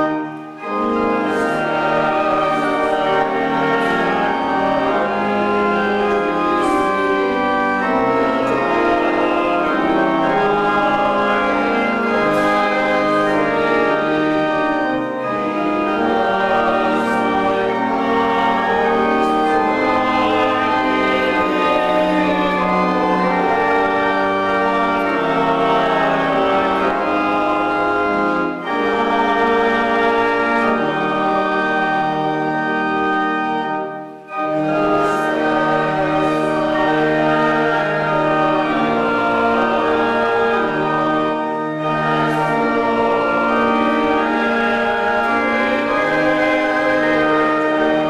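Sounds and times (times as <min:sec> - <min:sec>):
organ playing a hymn: 0:00.0 - 0:48.0.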